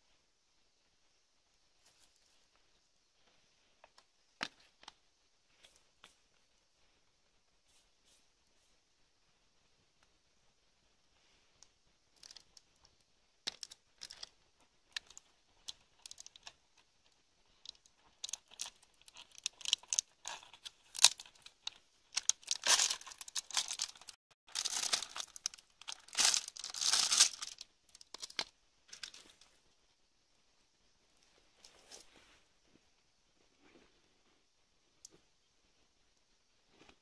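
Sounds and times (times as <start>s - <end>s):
crinkling and rustling: 11.2s - 29.8s, 31.1s - 35.4s.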